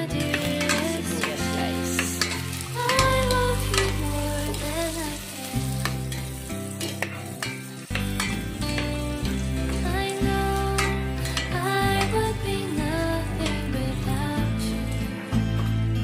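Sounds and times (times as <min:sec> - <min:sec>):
onion sizzling in oil: 0:00.0 - 0:13.7
background music: 0:00.0 - 0:16.0
metal spoon scraping a pot: 0:06.2 - 0:09.0.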